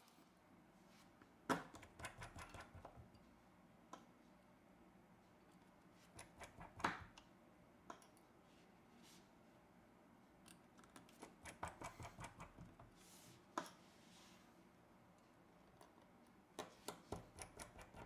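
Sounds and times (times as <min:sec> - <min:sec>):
small tools clicking and tapping: 0:15.7 - 0:18.0.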